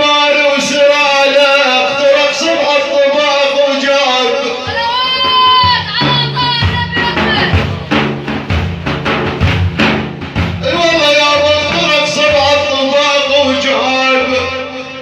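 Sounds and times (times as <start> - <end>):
voices chanting: 4.6 - 9.5
frame drums beating: 4.7 - 13.1.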